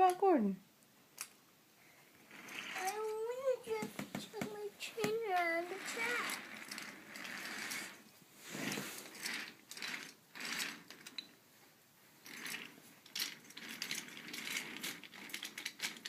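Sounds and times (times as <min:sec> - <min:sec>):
toy train rattling and clicking: 0:02.2 - 0:08.0, 0:08.6 - 0:11.3, 0:12.2 - 0:16.0.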